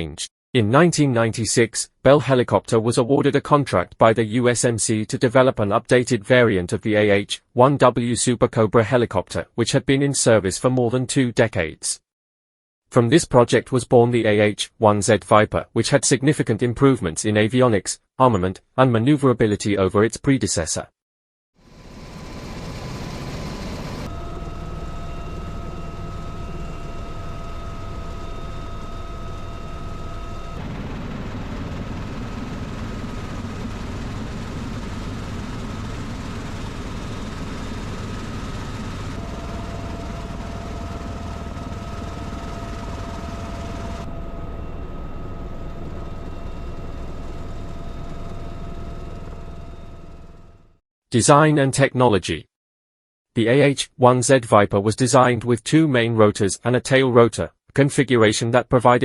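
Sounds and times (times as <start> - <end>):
helicopter turbine and rotor: 21.6 - 50.8.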